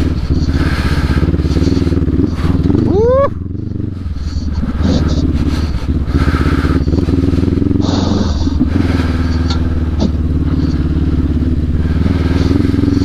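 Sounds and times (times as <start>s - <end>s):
motorcycle engine running: 0.0s - 13.0s
motorcycle rattling: 0.0s - 13.0s.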